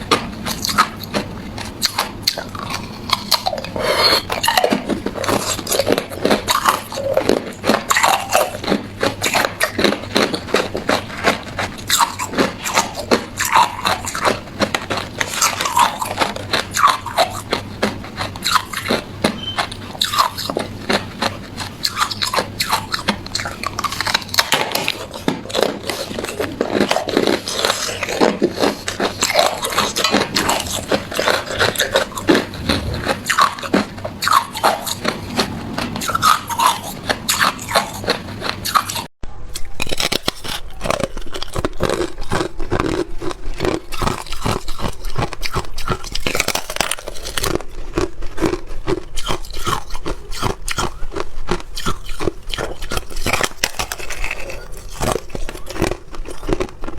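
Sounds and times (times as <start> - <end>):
ice being chewed: 0.0 - 56.9.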